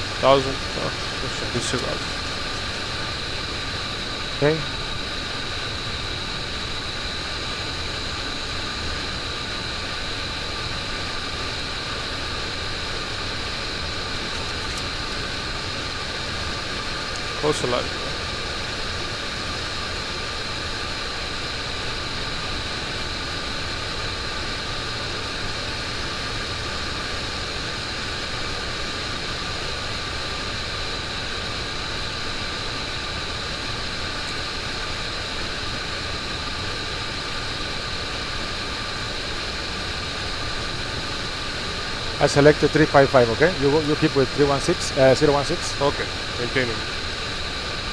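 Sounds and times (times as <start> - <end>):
thin high whine: 0.0 - 18.6, 39.4 - 47.9
rush of airflow and machinery: 0.0 - 18.8, 33.9 - 47.9.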